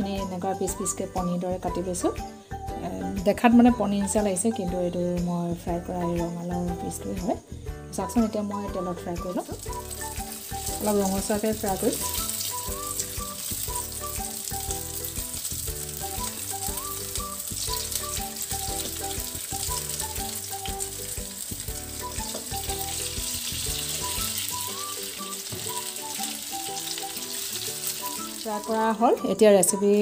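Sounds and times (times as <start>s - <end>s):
music playing: 0.0s - 30.0s
food sizzling in hot oil: 8.0s - 30.0s.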